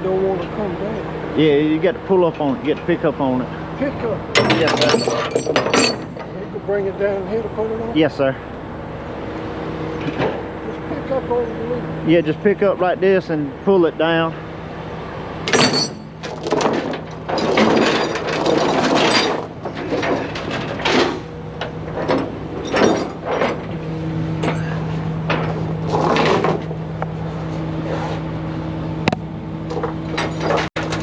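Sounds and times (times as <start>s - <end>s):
chains clanking and rattling: 4.3s - 6.6s, 15.5s - 23.8s, 24.4s - 26.8s, 29.7s - 31.0s.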